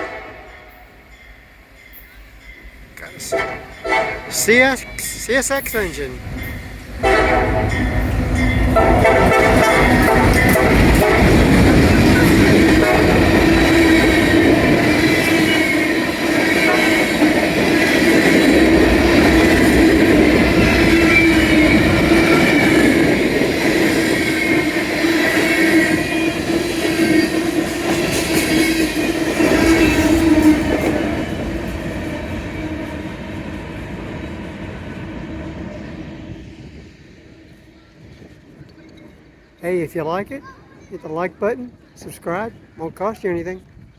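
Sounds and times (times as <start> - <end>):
train horn: 0.0 - 1.0, 3.2 - 4.4, 7.0 - 17.6, 29.4 - 31.4
train rumbling over rails: 0.0 - 43.9.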